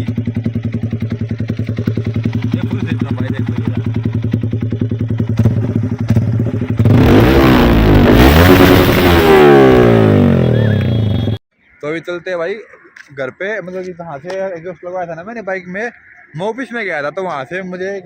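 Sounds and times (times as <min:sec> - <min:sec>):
motorcycle engine idling and revving: 0:00.0 - 0:11.4.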